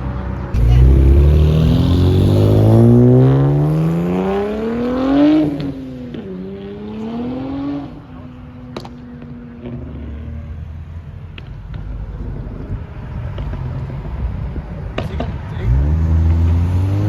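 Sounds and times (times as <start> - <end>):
car accelerating hard: 0.6 - 10.3, 12.2 - 17.0.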